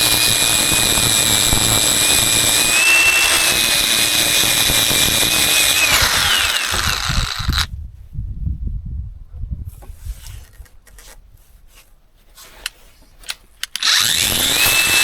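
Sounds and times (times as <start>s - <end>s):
power tool whining: 0.0s - 7.7s, 13.7s - 15.0s.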